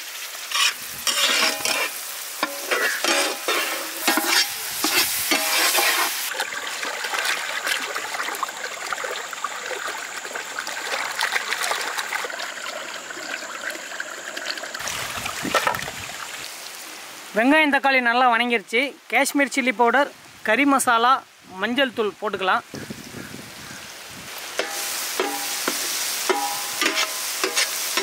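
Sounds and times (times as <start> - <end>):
food sizzling in pan: 0.0 - 6.4, 24.2 - 28.0
stirring scrapes in pan: 0.5 - 6.3, 24.6 - 28.0.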